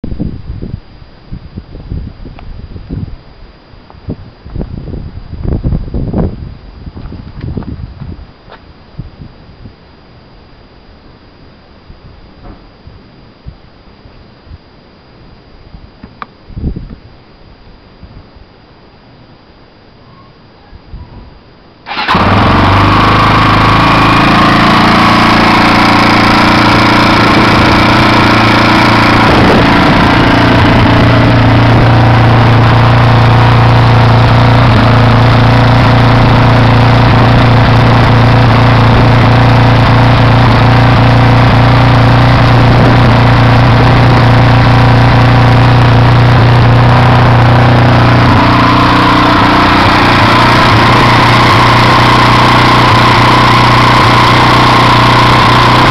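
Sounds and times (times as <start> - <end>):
motorcycle engine idling: 21.9 - 55.9.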